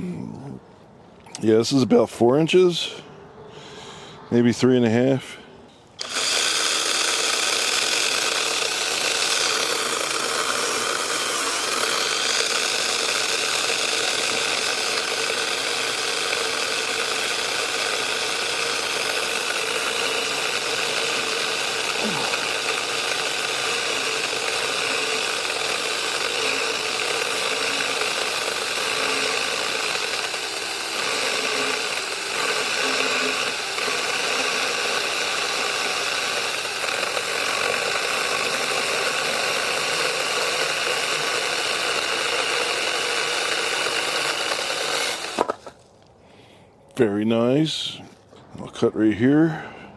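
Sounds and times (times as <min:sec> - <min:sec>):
chainsaw cutting a log: 0:06.0 - 0:45.8.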